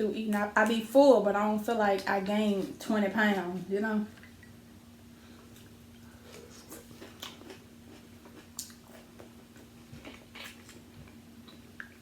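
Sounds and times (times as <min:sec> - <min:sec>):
faint steady hum: 0:00.0 - 0:12.0
chewing and wet mouth sounds: 0:05.5 - 0:12.0.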